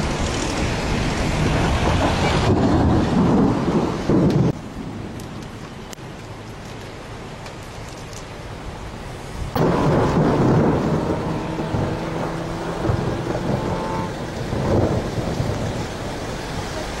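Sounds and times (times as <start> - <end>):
thunder rumbling: 0.0 - 5.3, 9.5 - 17.0
steady rain: 0.0 - 17.0.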